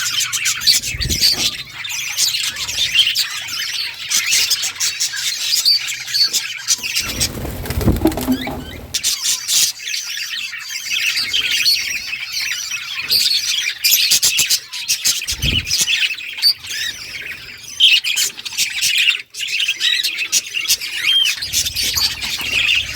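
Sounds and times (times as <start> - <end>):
low thuds: 7.0 - 9.0.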